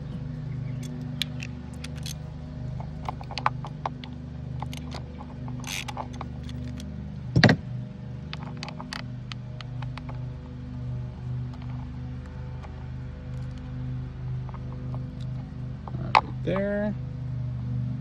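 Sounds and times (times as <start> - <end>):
steady low hum: 0.0 - 18.0
metallic tool clicks and taps: 0.8 - 2.2.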